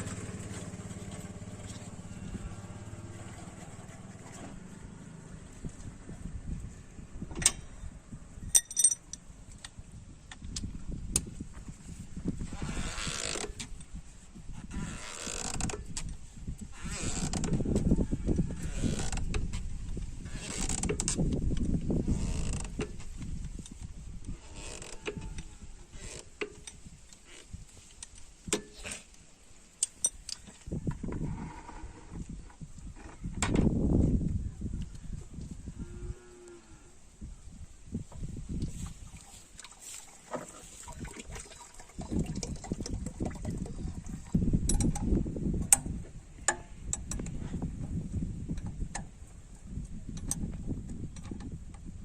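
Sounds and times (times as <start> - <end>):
metallic clinks and knocks: 8.5 - 9.2
metallic clicks and knocks: 8.6 - 10.4.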